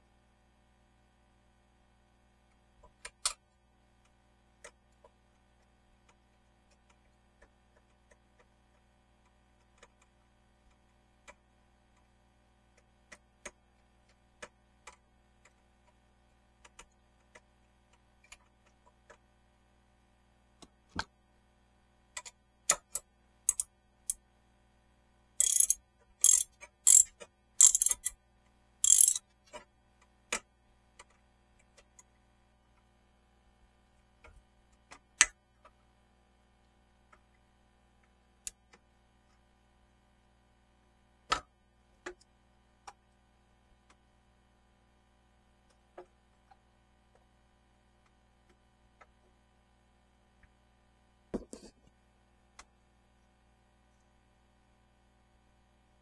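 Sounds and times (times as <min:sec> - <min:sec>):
hand tools clicking and tapping: 0:25.4 - 0:28.1, 0:28.8 - 0:29.2
rapid ratchet clicking: 0:25.4 - 0:28.1, 0:28.8 - 0:29.2.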